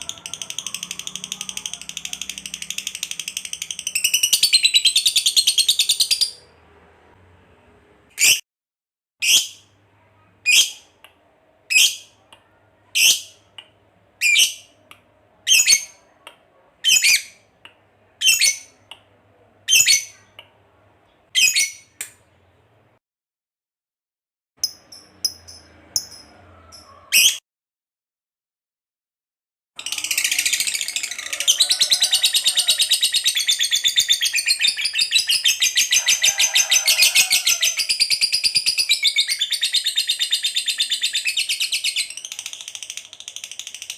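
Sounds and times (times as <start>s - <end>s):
bird chattering trill: 0.0s - 6.3s.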